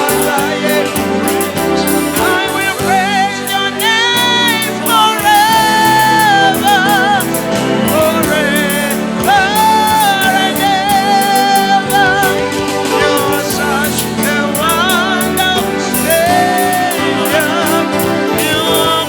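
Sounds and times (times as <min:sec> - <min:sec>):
instrumental accompaniment: 0:00.0 - 0:19.0
person singing with vibrato: 0:00.0 - 0:19.0.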